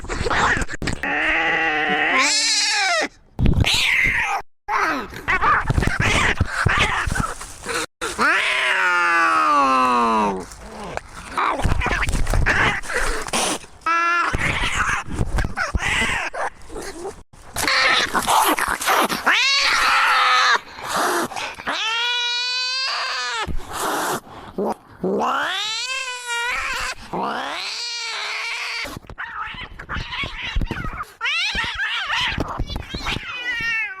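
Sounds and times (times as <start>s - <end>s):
cat yowling: 25.2s - 34.0s.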